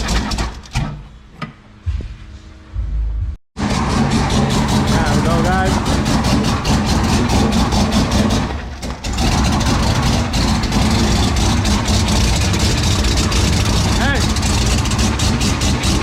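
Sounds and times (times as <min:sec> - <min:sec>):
truck engine idling: 0:03.6 - 0:16.0.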